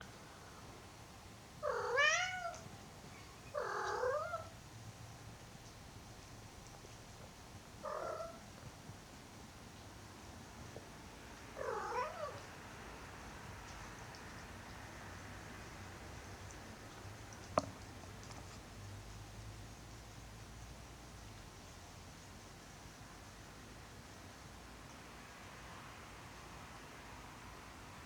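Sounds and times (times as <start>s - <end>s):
cat meowing: 1.6s - 2.7s, 3.3s - 4.5s, 7.8s - 8.4s, 11.6s - 12.5s.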